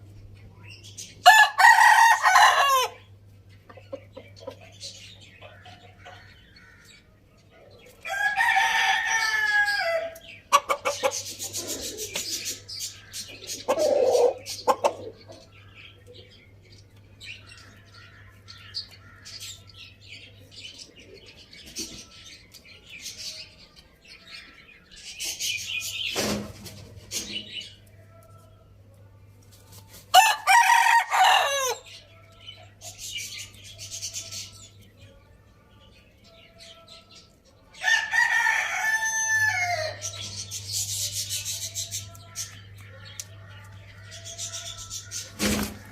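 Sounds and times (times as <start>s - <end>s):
chickens clucking: 0.2s - 28.8s, 37.0s - 45.9s
rooster crowing: 1.2s - 3.0s, 8.1s - 10.2s, 30.1s - 31.9s, 37.8s - 40.1s.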